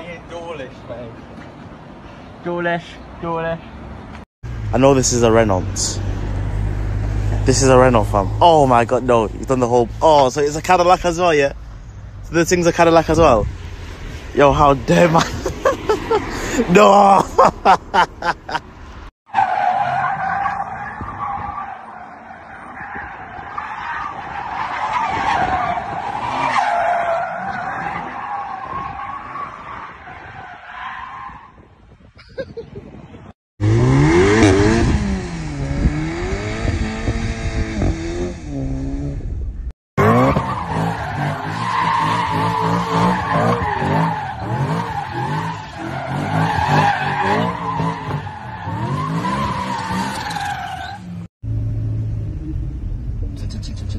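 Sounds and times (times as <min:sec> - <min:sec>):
car tyres squealing: 0:04.8 - 0:31.8, 0:40.0 - 0:51.3
car engine revving: 0:33.6 - 0:53.9.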